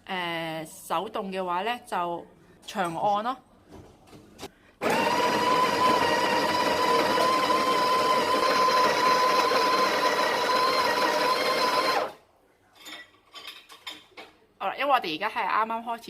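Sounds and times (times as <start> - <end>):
coffee grinder whining: 4.8 - 12.2.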